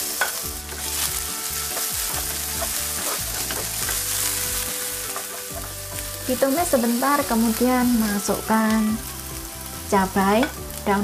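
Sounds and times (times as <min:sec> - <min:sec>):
food sizzling in hot oil: 0:00.0 - 0:11.0
spatula scraping pan: 0:00.2 - 0:06.1.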